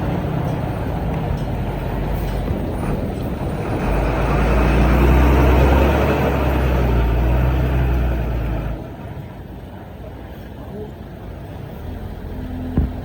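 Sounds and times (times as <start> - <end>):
diesel engine running under load: 0.0 - 9.3.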